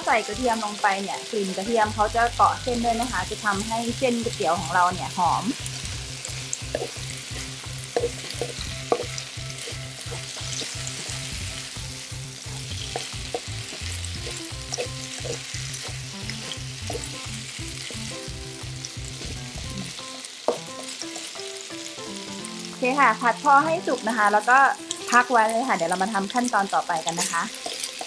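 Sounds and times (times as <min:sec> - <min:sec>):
noodles sizzling in oil: 0:00.0 - 0:28.0
spatula scraping a wok: 0:05.5 - 0:18.1, 0:27.1 - 0:28.0.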